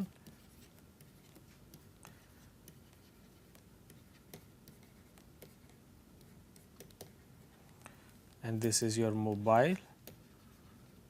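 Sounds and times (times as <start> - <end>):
pen scratching on paper: 0.1 - 7.4.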